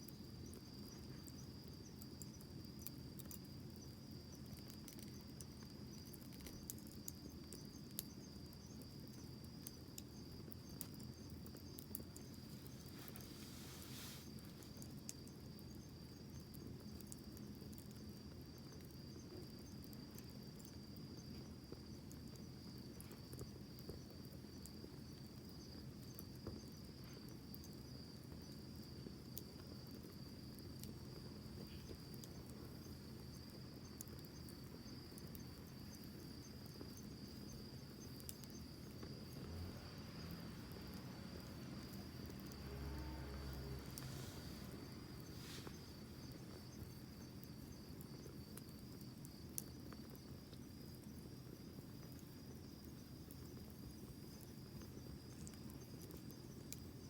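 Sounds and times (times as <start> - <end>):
cricket trill: 0.0 - 57.0
campfire crackling: 0.1 - 57.0
soft low rumble: 41.4 - 46.7.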